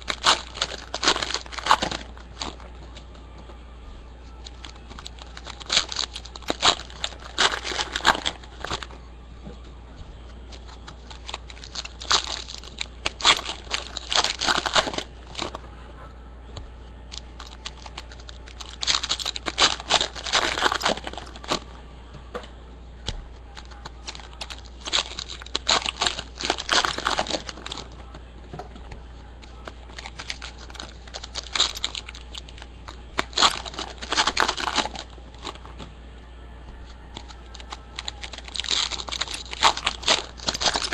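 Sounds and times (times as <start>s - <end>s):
card packs tearing open: 0.0s - 2.6s, 4.4s - 8.9s, 10.5s - 15.6s, 17.1s - 21.6s, 23.6s - 28.0s, 29.5s - 35.7s, 37.1s - 40.9s
foil wrappers crinkling: 0.0s - 3.0s, 4.3s - 9.0s, 10.5s - 15.6s, 17.1s - 21.7s, 23.4s - 35.8s, 37.1s - 40.9s.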